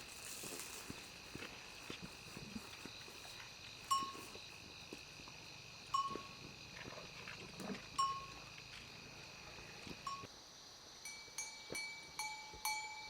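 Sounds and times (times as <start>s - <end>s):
animal bell clanking: 3.9s - 4.4s, 6.0s - 6.4s, 8.0s - 8.4s, 11.1s - 13.0s.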